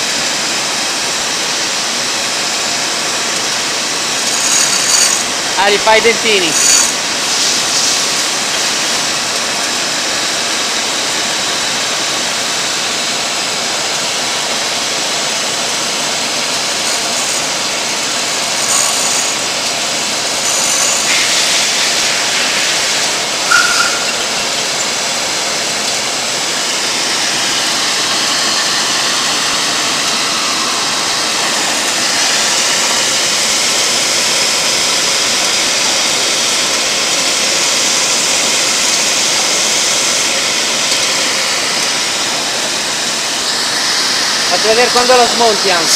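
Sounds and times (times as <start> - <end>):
grinding machine hissing: 0.0 - 45.9
high squeak: 4.2 - 8.8, 18.4 - 19.5, 20.3 - 22.5, 23.5 - 25.0.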